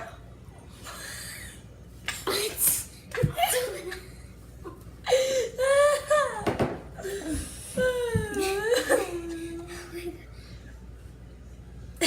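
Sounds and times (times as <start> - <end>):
children laughing: 3.2 - 4.8, 8.3 - 10.2.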